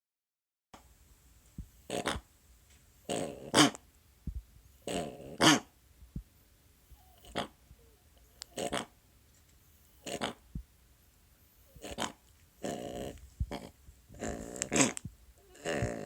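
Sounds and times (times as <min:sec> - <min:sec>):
dog making honking noises: 0:03.1 - 0:03.8, 0:04.9 - 0:05.7, 0:14.6 - 0:15.0.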